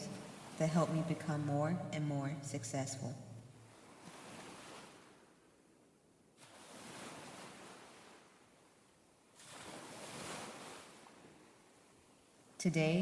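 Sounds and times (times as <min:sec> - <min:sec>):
ocean waves washing in: 0:00.0 - 0:01.3, 0:03.6 - 0:05.4, 0:06.4 - 0:08.6, 0:09.3 - 0:12.6.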